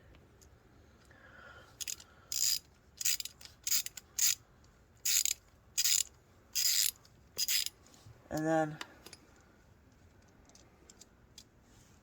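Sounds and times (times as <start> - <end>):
ratcheting tap wrench clicking: 1.8 - 4.4, 5.0 - 7.7.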